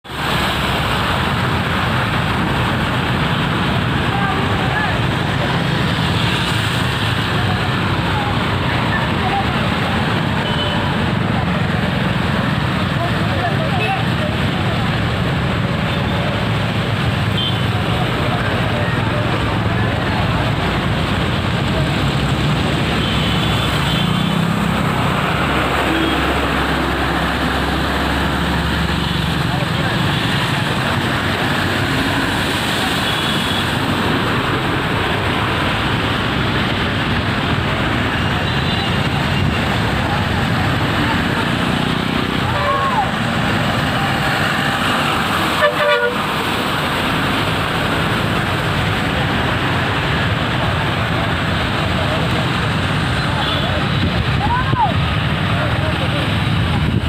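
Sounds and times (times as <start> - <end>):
loud rushing noise: 0.0 - 57.0
road traffic noise: 0.0 - 57.0
vehicle engines running: 0.0 - 57.0
vehicle horn blast: 45.6 - 46.2.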